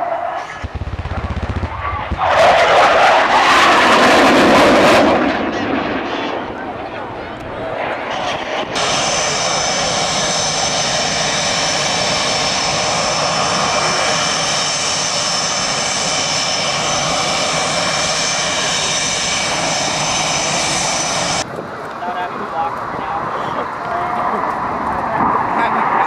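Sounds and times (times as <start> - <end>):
high even whine: 0.0 - 21.5
aircraft engine running: 0.0 - 26.0.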